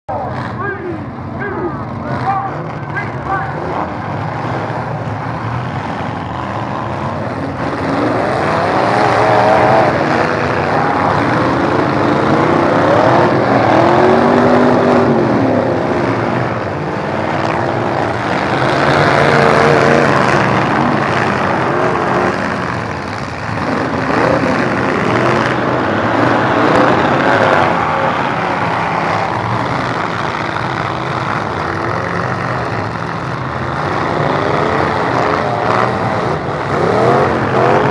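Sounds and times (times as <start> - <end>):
truck engines revving: 0.1 - 37.9.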